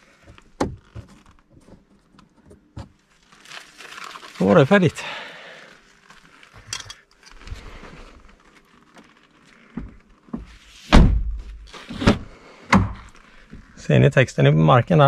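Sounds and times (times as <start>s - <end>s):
heavy car door thunks: 10.9s - 13.1s.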